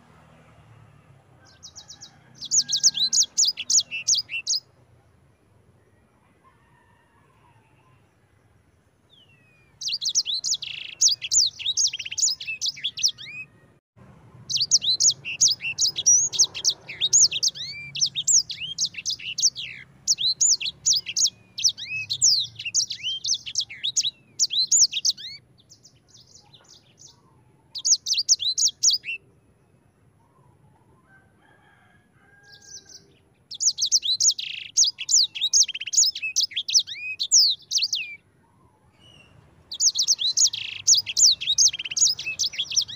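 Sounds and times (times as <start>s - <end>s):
finch singing chirps and trills: 1.5s - 4.7s, 9.1s - 13.5s, 14.4s - 29.3s, 32.5s - 38.2s, 38.9s - 42.9s.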